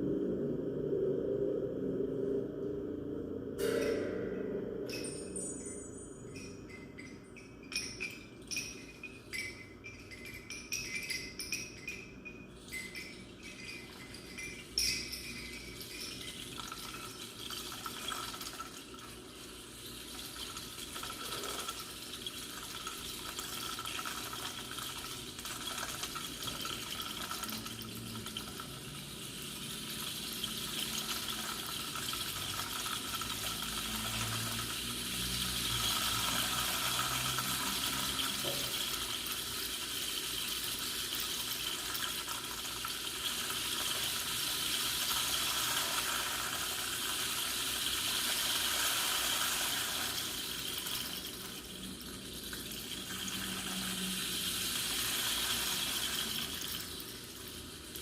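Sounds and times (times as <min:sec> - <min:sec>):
rushing water-like noise: 0:14.3 - 0:58.0.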